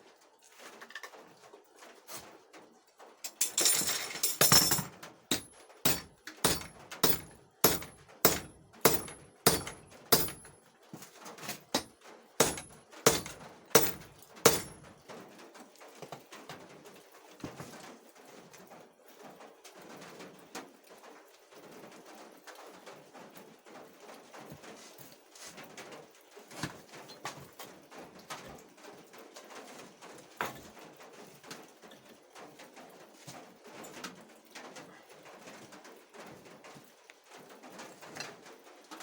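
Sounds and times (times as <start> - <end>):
hammer striking steel on anvil: 4.4 - 10.5, 11.8 - 14.8.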